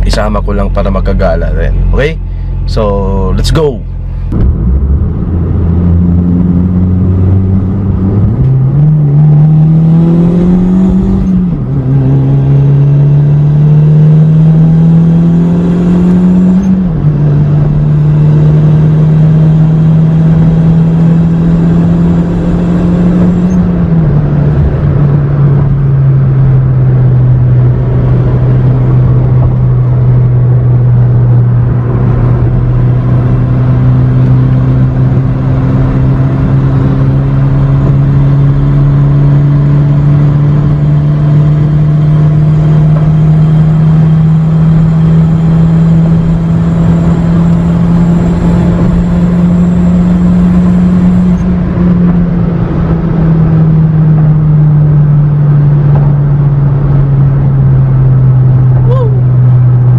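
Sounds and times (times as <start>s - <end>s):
car engine at high revs: 0.0s - 59.9s.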